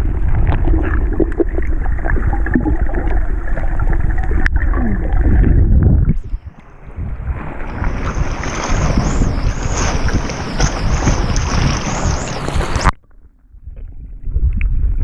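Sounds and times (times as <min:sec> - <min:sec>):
churning water: 0:00.0 - 0:14.4
wavering high whine: 0:06.1 - 0:12.9.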